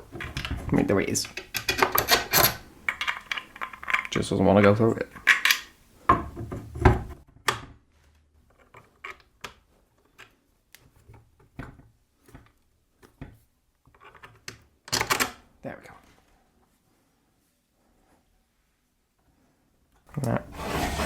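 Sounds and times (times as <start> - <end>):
metal parts knocking and clicking: 0.1 - 4.2, 5.2 - 5.7.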